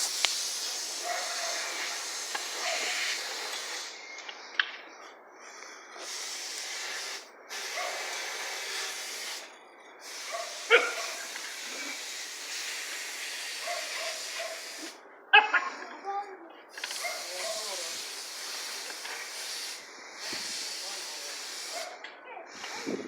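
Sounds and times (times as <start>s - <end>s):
dog barking: 1.0s - 1.6s, 10.3s - 11.2s, 13.6s - 14.6s, 17.0s - 17.7s.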